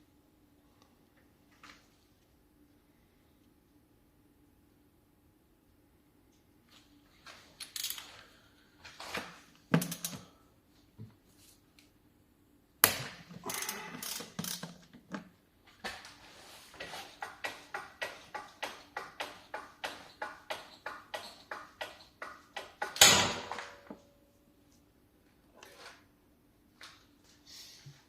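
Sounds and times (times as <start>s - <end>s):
hand tools knocking and scraping: 16.7s - 24.1s.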